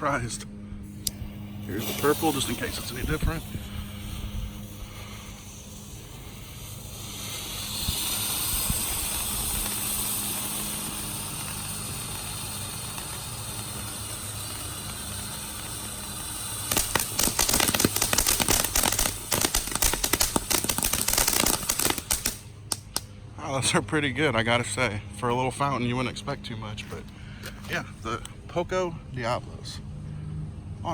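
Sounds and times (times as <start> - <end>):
firework crackling: 0.0 - 23.1
fountain firework hissing: 0.0 - 23.1.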